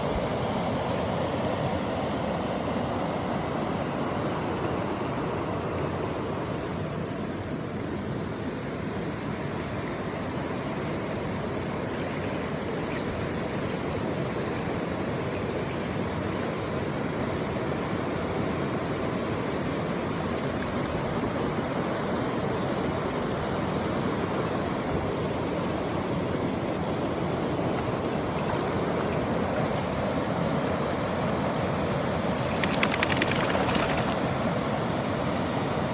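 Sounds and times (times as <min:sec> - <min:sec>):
river water rushing: 0:23.3 - 0:35.9.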